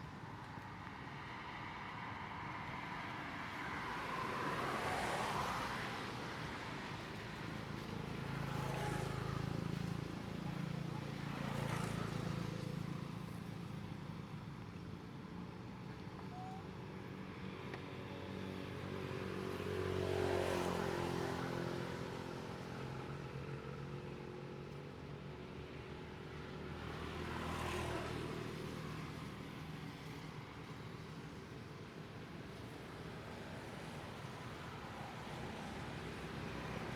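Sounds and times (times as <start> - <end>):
steady traffic: 0.0 - 36.9
vehicles passing: 25.5 - 36.9.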